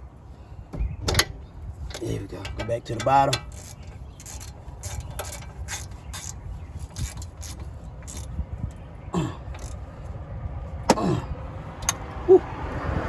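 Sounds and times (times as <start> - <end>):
socket ratchet clicking: 3.3 - 8.3.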